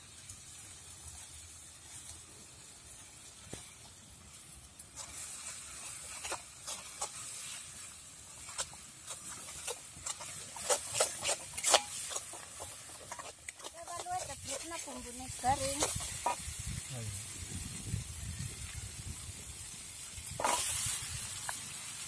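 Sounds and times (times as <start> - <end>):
spice paste sizzling in a wok: 0.0 - 22.0
metal spatula scraping a wok: 4.9 - 16.9, 20.2 - 22.0.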